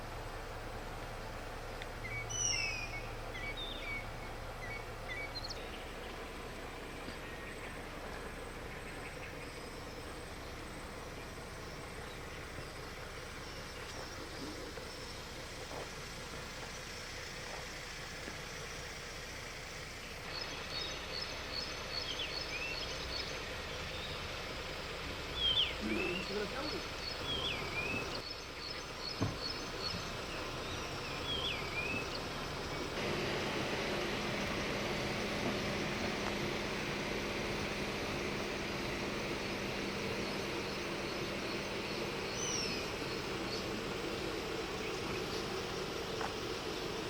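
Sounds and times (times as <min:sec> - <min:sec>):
steady outdoor hiss: 0:00.0 - 0:47.0
bird chirping and whistling: 0:02.0 - 0:05.7.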